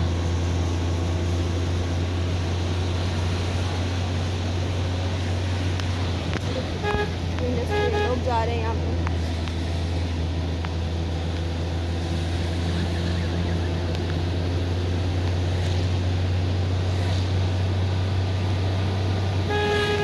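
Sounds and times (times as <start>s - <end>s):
car engine droning: 0.0s - 20.0s
tyres on wet road: 0.0s - 20.0s
car horn honk: 6.6s - 8.4s, 19.4s - 20.0s.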